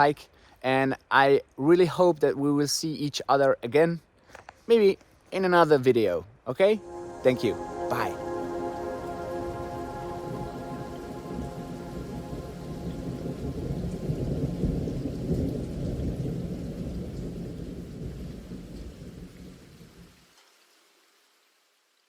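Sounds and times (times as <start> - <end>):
steady rain: 6.6 - 22.0
thunder rumbling: 6.8 - 19.7.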